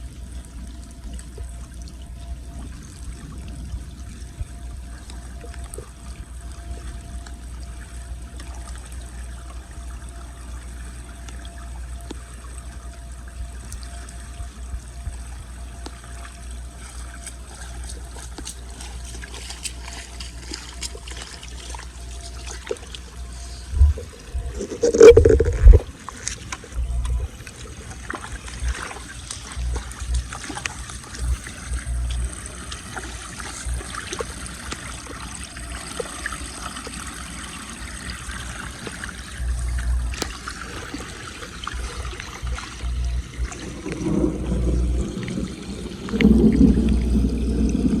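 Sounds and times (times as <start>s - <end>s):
steady low rumble: 0.0s - 48.0s
water draining into storm drain: 15.8s - 48.0s.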